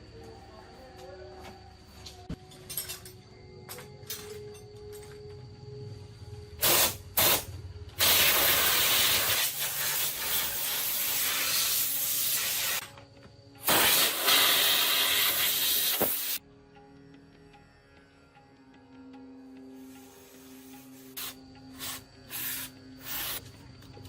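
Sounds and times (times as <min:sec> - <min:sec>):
high-pressure spray hissing: 0:06.6 - 0:12.8, 0:13.6 - 0:16.4, 0:19.8 - 0:23.4.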